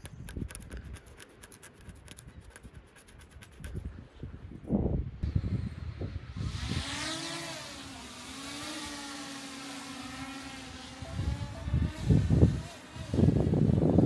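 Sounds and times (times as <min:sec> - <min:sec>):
motor humming: 0:05.3 - 0:14.0.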